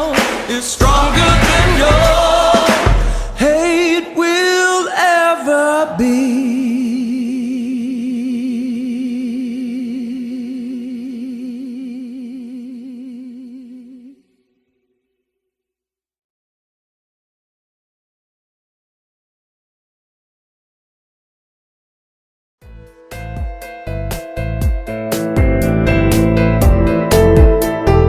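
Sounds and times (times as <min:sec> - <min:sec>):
rock band playing: 0:00.0 - 0:03.1, 0:22.7 - 0:28.0
person singing vocal runs: 0:00.0 - 0:14.2.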